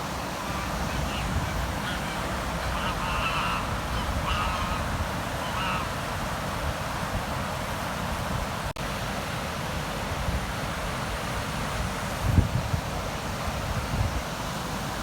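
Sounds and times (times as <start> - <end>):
river water rushing: 0.0 - 15.0
goose honking: 0.4 - 6.0.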